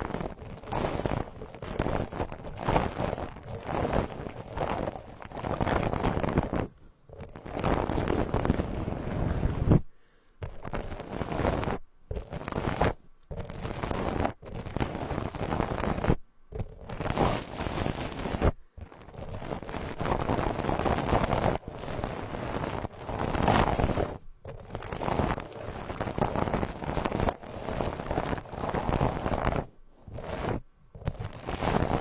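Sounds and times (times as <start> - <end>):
brush rustling over microphone: 0.0 - 32.0.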